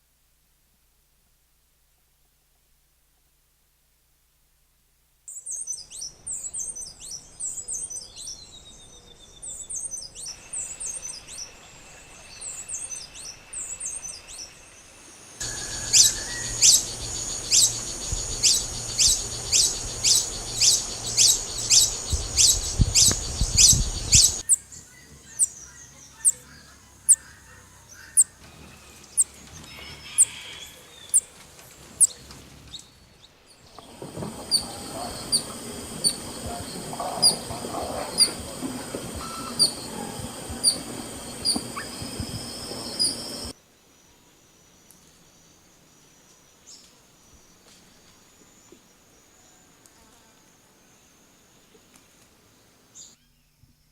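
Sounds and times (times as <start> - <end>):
wild birds chirping: 5.3 - 44.2.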